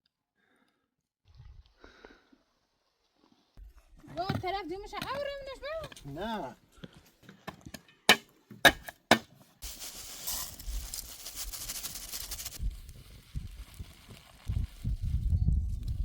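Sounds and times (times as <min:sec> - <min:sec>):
hissing noise: 0:09.6 - 0:12.7.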